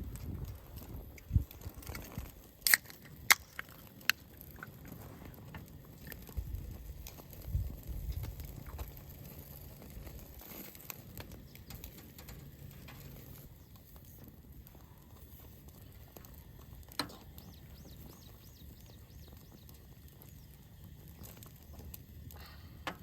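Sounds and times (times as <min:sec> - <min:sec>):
sharp clicks of cooking gear: 0:00.1 - 0:04.8.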